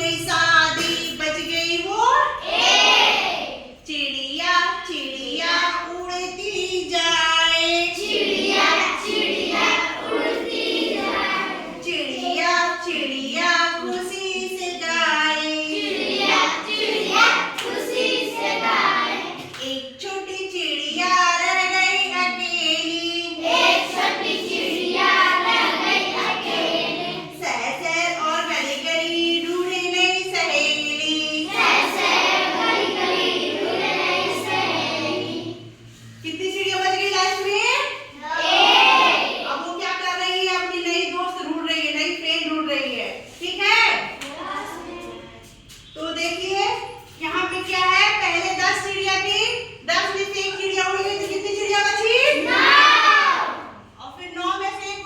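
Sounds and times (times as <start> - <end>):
children singing in chorus: 8.0 - 11.8, 15.7 - 19.5, 23.4 - 27.3, 31.4 - 35.7.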